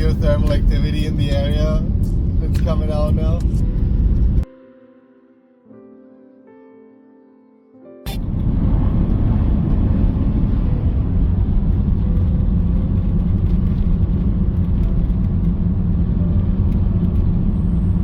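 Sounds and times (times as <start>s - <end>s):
car driving rumble: 0.0s - 4.4s, 8.1s - 18.0s.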